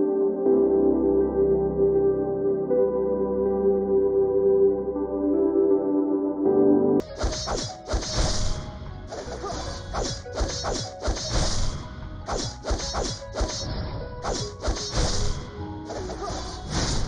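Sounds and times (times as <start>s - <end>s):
soft synth music: 0.0s - 17.0s
sharp whacking hits with swish: 7.0s - 17.0s.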